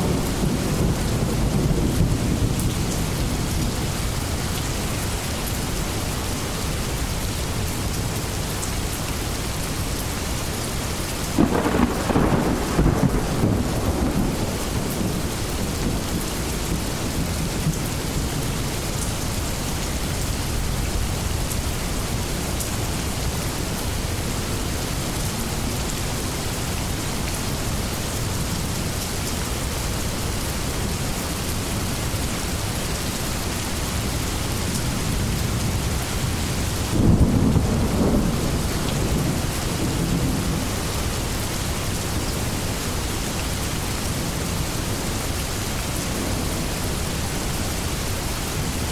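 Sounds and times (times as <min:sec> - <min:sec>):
thunder rumbling: 0:00.0 - 0:04.3, 0:11.4 - 0:18.8, 0:35.7 - 0:41.2
heavy rain: 0:00.0 - 0:48.9.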